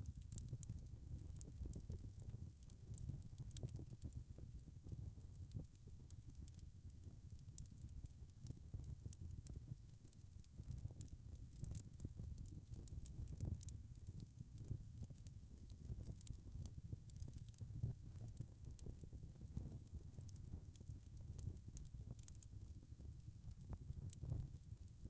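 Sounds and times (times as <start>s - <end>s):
wood fire crackling and popping: 0.0s - 25.0s
low rumble of flames: 0.1s - 25.0s.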